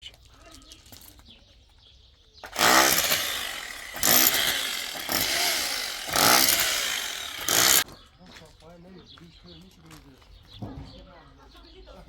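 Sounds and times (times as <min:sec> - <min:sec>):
small engine revving: 0:02.4 - 0:07.8.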